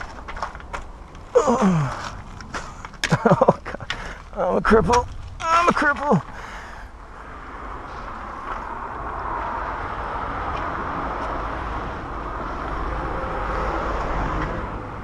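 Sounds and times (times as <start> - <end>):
vehicle passing by: 6.7 - 15.0.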